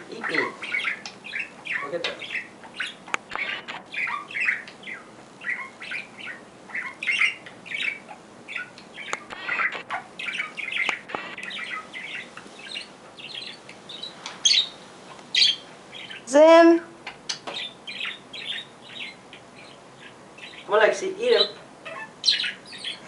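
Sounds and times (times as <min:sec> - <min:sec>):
parrot chirping: 0:00.0 - 0:23.0
sharp clicks: 0:08.8 - 0:10.0.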